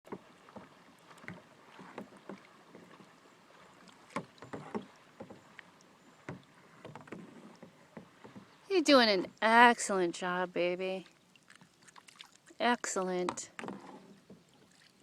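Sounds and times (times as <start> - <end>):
paddle knocking against boat: 0.1 - 9.2, 13.2 - 14.8
paddles splashing in water: 0.1 - 15.0.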